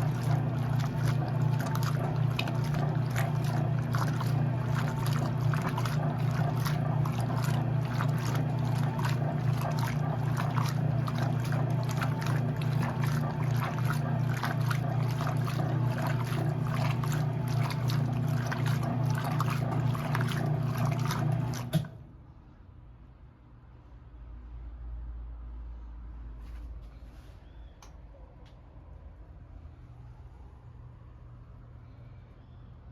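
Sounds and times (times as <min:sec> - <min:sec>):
washing machine motor hum: 0:00.0 - 0:22.0
washing machine water sloshing: 0:00.0 - 0:22.0.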